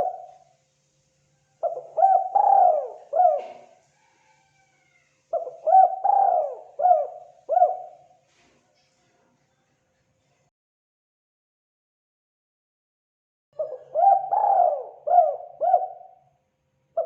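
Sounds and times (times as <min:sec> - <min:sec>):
dove cooing: 0:00.0 - 0:00.4, 0:01.6 - 0:08.2, 0:13.6 - 0:16.2.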